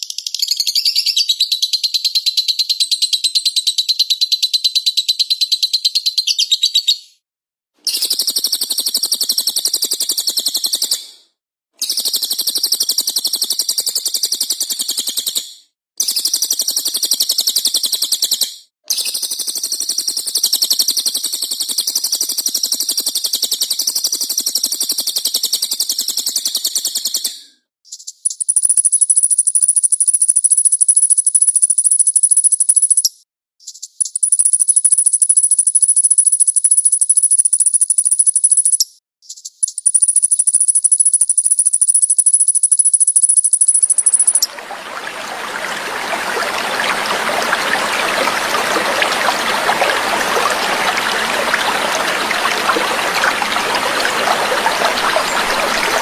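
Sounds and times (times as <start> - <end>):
high-pitched steady bird trill: 27.9 - 44.6, 45.2 - 56.0.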